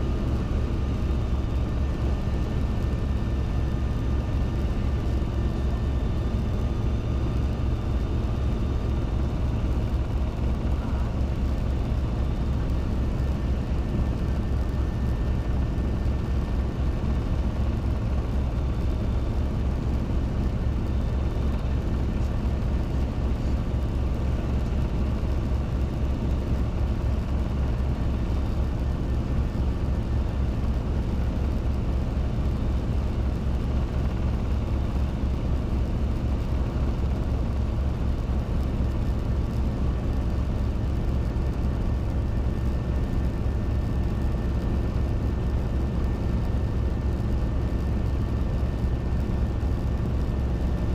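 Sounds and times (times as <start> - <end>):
helicopter engine and rotor drone: 0.0 - 50.9.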